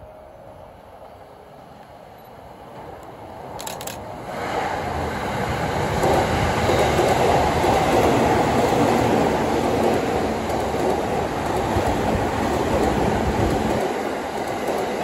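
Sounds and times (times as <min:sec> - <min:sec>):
electric train on rails: 0:00.0 - 0:15.0.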